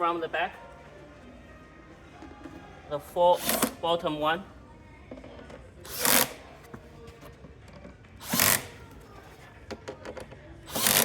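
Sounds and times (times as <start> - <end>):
power screwdriver driving screws: 3.4 - 3.8, 5.9 - 6.4, 8.2 - 8.8, 10.7 - 11.0.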